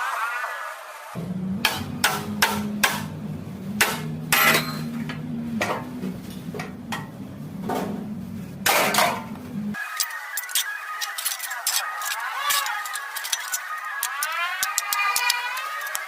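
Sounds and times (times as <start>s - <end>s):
low hum: 1.2s - 9.8s
hammer on sheet metal: 1.6s - 3.2s.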